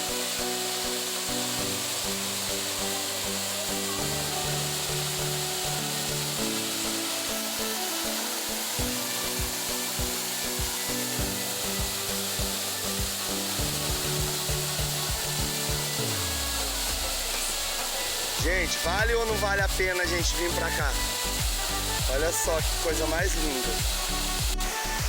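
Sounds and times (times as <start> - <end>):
falling water hiss: 0.0 - 25.0
background music with bass and beat: 8.8 - 25.0.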